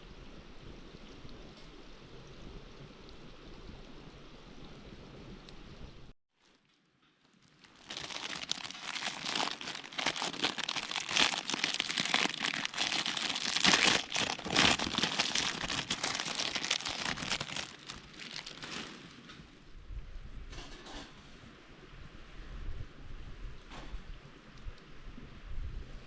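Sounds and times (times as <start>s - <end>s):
packaging crinkling: 7.3s - 19.2s.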